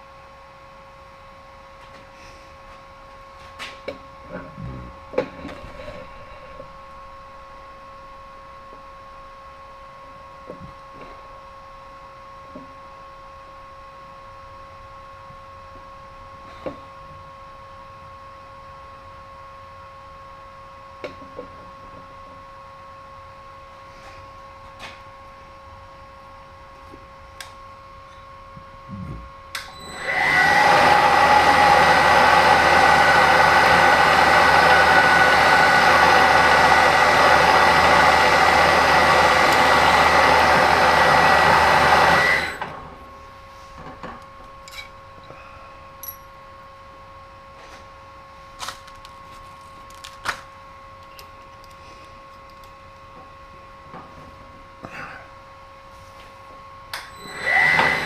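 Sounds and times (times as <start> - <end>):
faint machine hum: 0.0 - 58.0
power tool motor whining: 29.7 - 42.8, 57.2 - 58.0.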